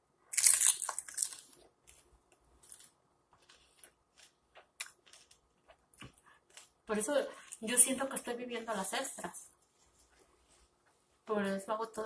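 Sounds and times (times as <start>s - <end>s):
chewing crackles: 0.3s - 6.8s
crunching bite: 0.3s - 6.8s.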